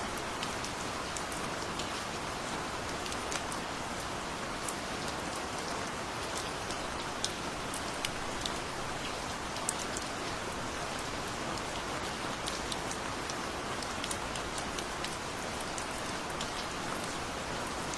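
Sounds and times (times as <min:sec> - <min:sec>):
gentle rain falling: 0:00.0 - 0:17.9.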